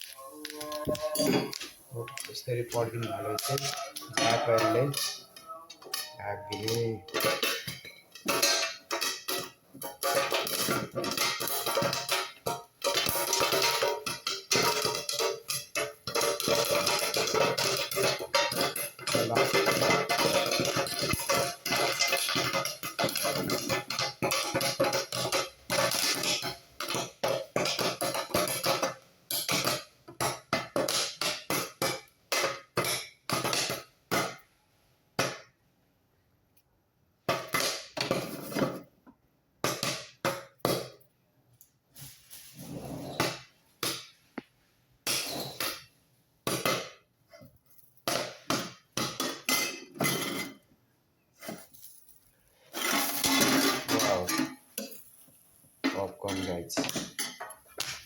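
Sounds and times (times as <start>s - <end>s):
kernels popping in covered pan: 0.0s - 34.5s, 37.2s - 41.0s, 52.7s - 58.0s.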